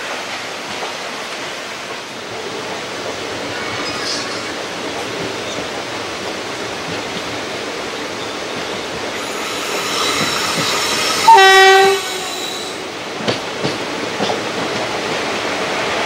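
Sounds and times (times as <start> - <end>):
train rumbling and rattling on rails: 0.0 - 16.0
locomotive horn blast: 11.2 - 12.8.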